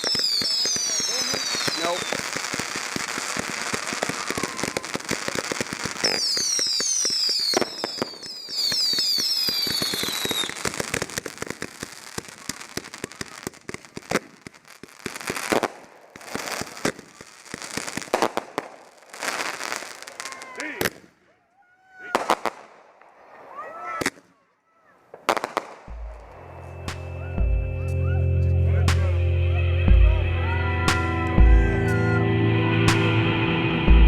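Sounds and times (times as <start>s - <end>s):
shrill falling whistles: 0.0s - 2.4s, 6.0s - 10.7s, 26.1s - 28.4s
fireworks crackling and popping: 0.0s - 28.2s, 28.9s - 29.3s, 29.9s - 32.2s, 32.8s - 34.0s.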